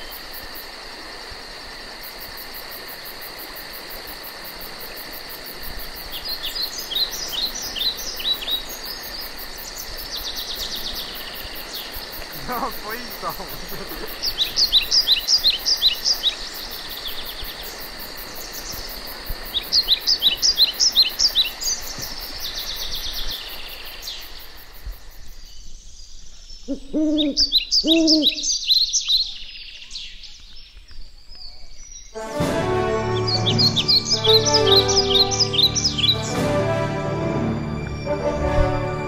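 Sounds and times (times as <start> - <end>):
insect trill: 0.0 - 31.0, 32.9 - 36.4
songbirds singing: 6.0 - 24.6, 25.2 - 32.2, 33.1 - 36.4
low hooting calls: 12.0 - 15.2, 26.7 - 28.4.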